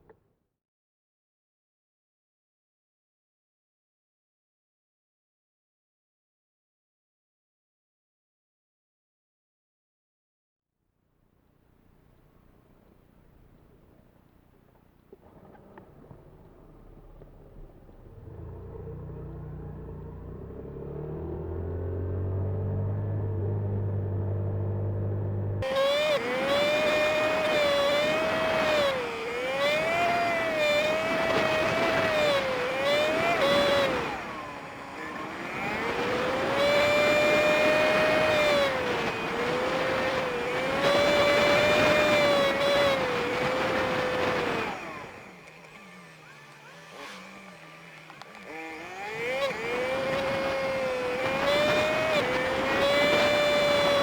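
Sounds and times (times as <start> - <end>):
wind and road noise: 12.1 - 54.0
small motorcycle engine: 12.8 - 54.0.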